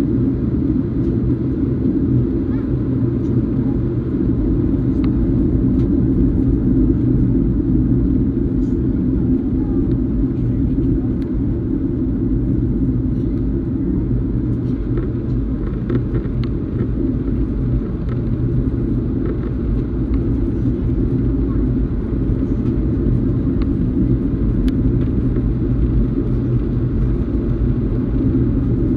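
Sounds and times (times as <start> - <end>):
jet engine cabin drone: 0.0 - 28.9.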